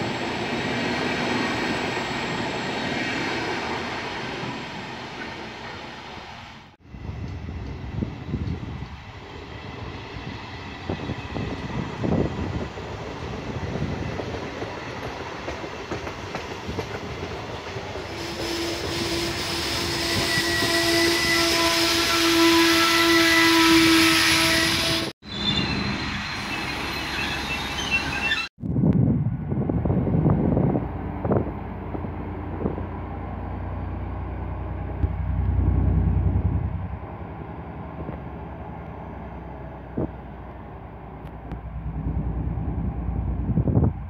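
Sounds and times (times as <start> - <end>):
train rumbling along platform: 0.0 - 44.0
train brakes squealing: 18.1 - 28.5
diesel locomotive running: 29.2 - 44.0.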